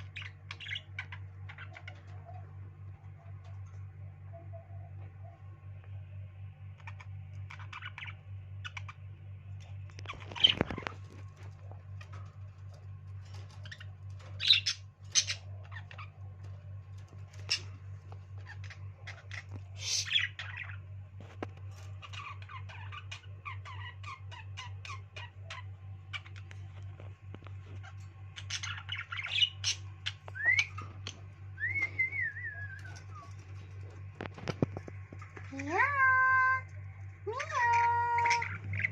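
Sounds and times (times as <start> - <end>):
bird squawks: 0.0 - 2.6, 6.8 - 9.0, 10.0 - 12.3, 13.3 - 20.9, 27.7 - 34.5, 37.3 - 38.9
low steady hum: 0.0 - 38.9
pet birds chattering: 0.0 - 38.9
bird whistles: 30.4 - 30.8, 31.6 - 33.4.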